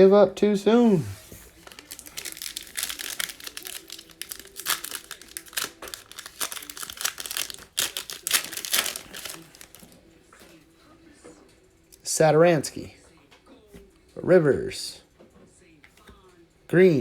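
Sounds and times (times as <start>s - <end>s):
foil wrapper crinkling and tearing: 1.2s - 10.0s.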